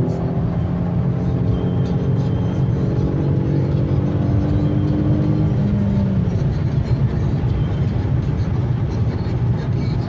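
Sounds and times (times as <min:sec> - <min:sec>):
engine and road noise rumble: 0:00.0 - 0:10.0.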